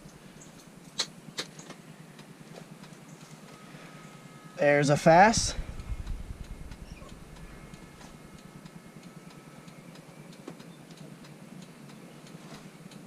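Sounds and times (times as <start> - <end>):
light electrical ticking: 0.0 - 13.0
faint high whine: 1.9 - 10.9.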